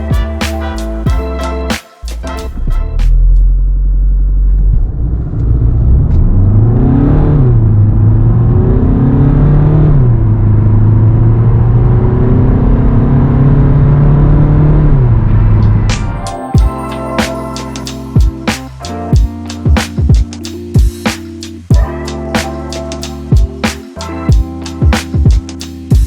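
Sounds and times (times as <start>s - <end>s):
diesel car engine accelerating hard: 4.5s - 15.4s.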